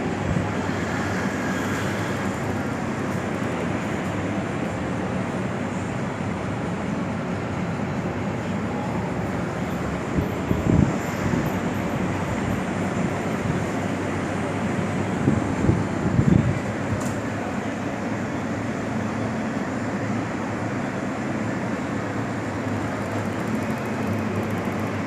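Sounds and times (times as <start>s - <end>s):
electric fan whirring: 0.0s - 20.2s, 21.0s - 25.0s
air gusts on microphone: 14.9s - 17.5s.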